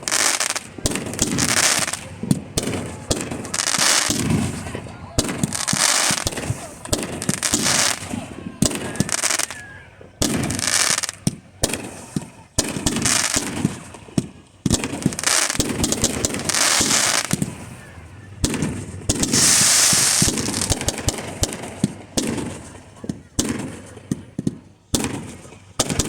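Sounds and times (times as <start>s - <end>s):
fireworks bangs: 0.0s - 26.0s
fireworks crackling: 0.0s - 26.0s.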